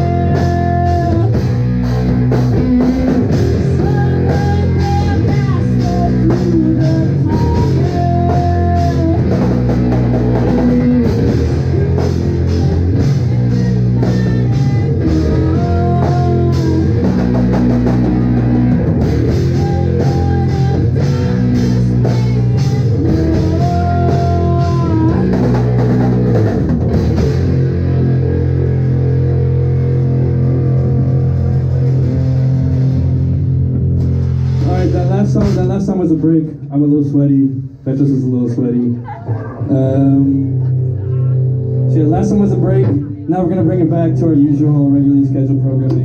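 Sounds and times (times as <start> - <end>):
drum kit with crashing cymbals: 0.0 - 28.2, 29.0 - 36.3
bass guitar: 0.0 - 46.0
distorted electric guitar: 0.0 - 46.0.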